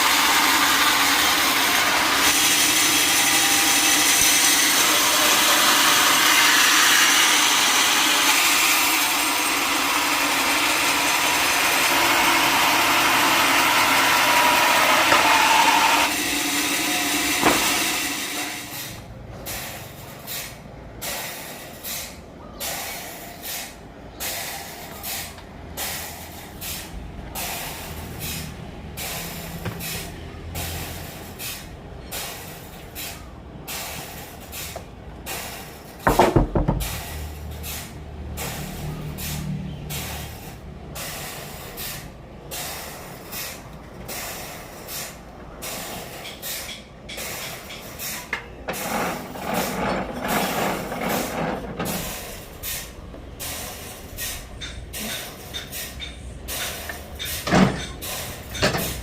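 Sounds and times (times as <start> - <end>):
loud metallic bang: 16.0 - 19.0.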